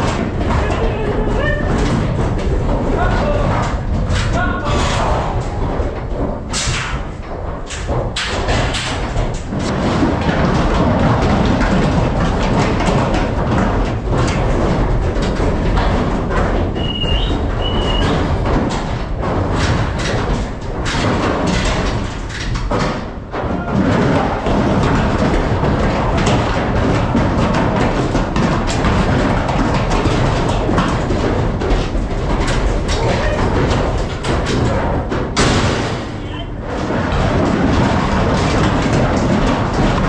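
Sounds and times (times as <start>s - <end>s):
cab knocks and thuds: 0.0s - 40.0s.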